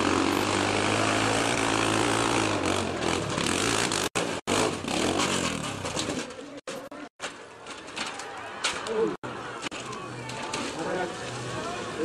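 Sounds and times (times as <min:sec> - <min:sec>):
vehicle engine humming: 0:00.0 - 0:06.6.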